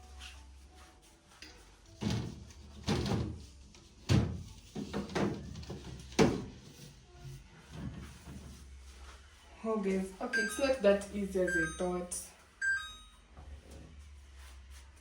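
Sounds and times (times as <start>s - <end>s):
items knocking on fridge shelves: 2.0s - 6.8s.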